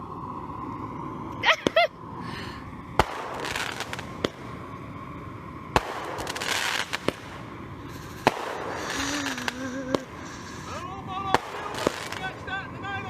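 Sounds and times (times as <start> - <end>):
fireworks crackling hiss: 0.0 - 13.0
fireworks bangs: 3.0 - 4.6, 5.7 - 13.0.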